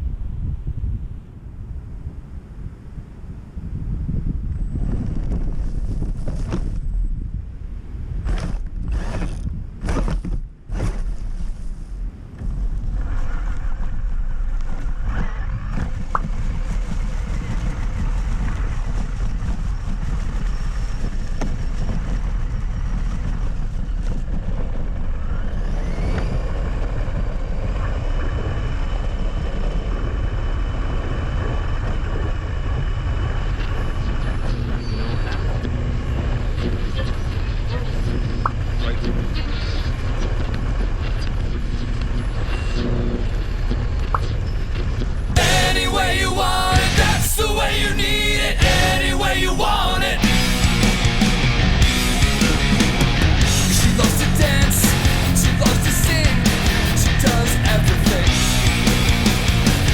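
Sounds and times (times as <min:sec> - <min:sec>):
faint whining tones: 0:10.7 - 0:53.8
vehicle engine rumble: 0:11.6 - 0:59.9.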